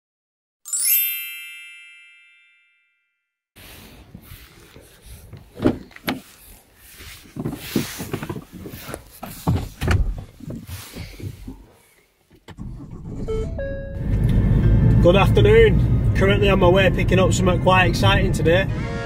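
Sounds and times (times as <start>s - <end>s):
rustling: 3.6s - 12.4s
footsteps: 3.9s - 12.0s
handling noise: 3.9s - 12.5s.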